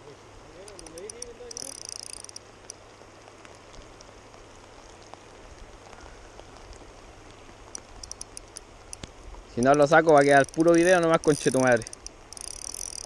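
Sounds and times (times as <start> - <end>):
rain hissing: 0.0 - 13.0
fishing reel clicking: 0.6 - 2.4, 7.8 - 8.6, 9.7 - 13.0.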